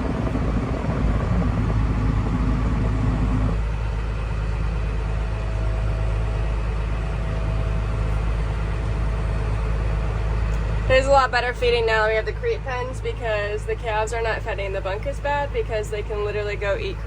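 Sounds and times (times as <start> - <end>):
farm vehicle engine running: 0.0 - 17.0.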